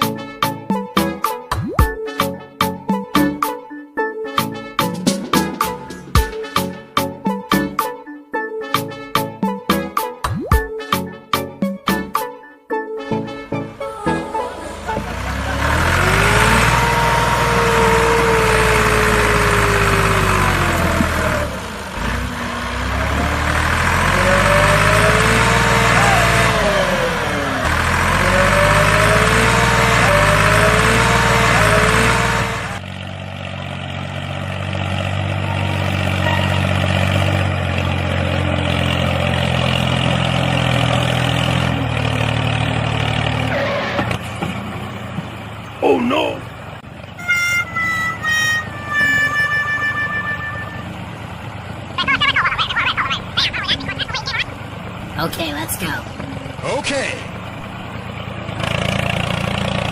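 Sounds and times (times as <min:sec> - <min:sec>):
small tractor engine running hard: 0:14.6 - 0:59.9.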